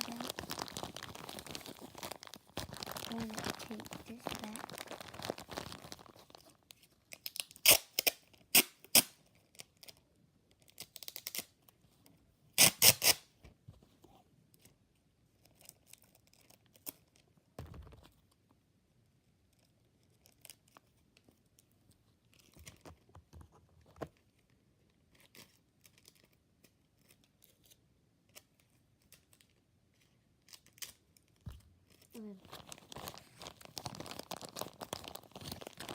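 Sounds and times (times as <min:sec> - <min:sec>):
plastic bag rustling: 0:00.0 - 0:06.6, 0:32.2 - 0:35.9
sticky tape ripping off roll: 0:07.2 - 0:09.2, 0:12.6 - 0:13.3.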